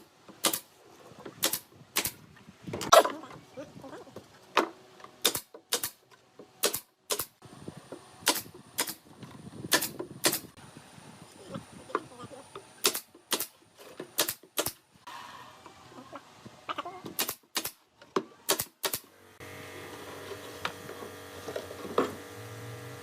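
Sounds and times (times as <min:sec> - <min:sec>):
nails hammered into wood: 0:00.4 - 0:00.6, 0:05.2 - 0:06.0, 0:06.6 - 0:07.3, 0:08.2 - 0:09.0, 0:09.7 - 0:10.5, 0:12.8 - 0:13.5, 0:14.2 - 0:14.8, 0:17.2 - 0:17.8, 0:18.5 - 0:19.1.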